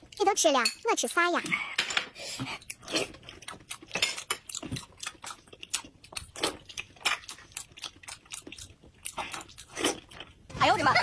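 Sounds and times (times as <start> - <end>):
wet chewing and smacking: 2.4 - 10.5.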